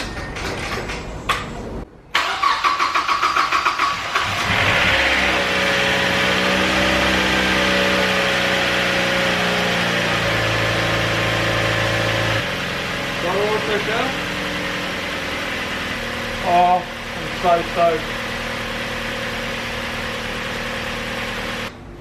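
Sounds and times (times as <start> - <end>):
engine cranking by starter: 2.1 - 6.4
car engine idling: 4.3 - 21.7.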